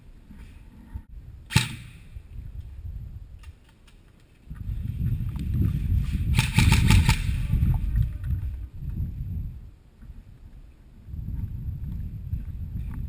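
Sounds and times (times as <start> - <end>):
low rumble on microphone: 0.1 - 3.4, 4.4 - 13.0.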